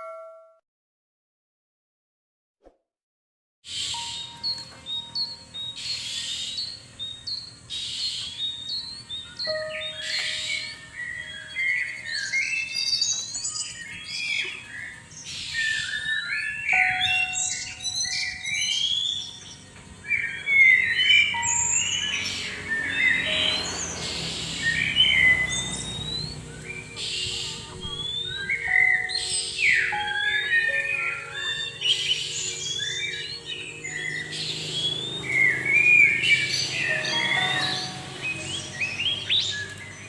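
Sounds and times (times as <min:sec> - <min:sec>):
birds singing whistled notes: 0:03.7 - 0:40.0.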